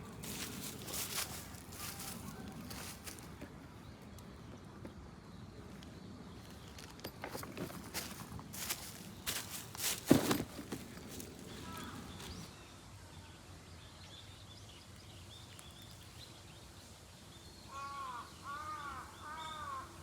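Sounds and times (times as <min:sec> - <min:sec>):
small birds chirping: 0:00.0 - 0:12.5
crow cawing: 0:11.6 - 0:12.2, 0:17.7 - 0:20.0.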